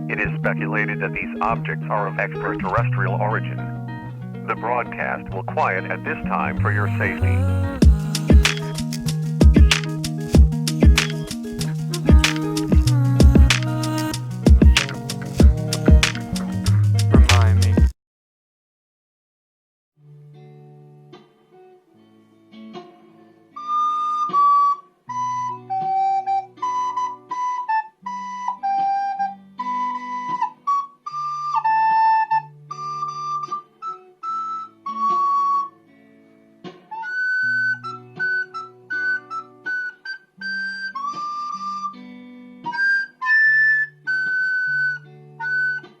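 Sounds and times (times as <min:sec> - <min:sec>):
plucked guitar chords: 0:00.0 - 0:17.9
flute-like melody: 0:00.2 - 0:17.9, 0:23.6 - 0:35.8, 0:36.9 - 0:46.0.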